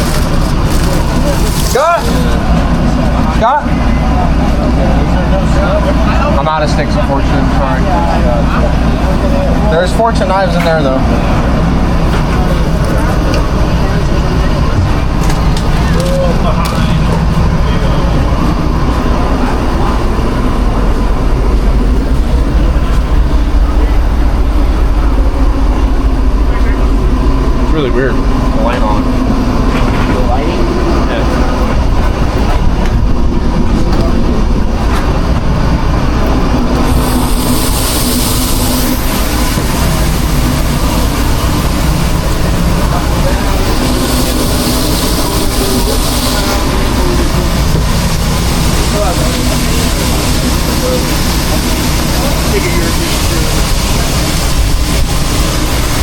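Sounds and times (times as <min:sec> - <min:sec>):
machinery rumbling: 0:00.0 - 0:56.0
rushing noise: 0:00.0 - 0:56.0
hiss: 0:36.8 - 0:56.0.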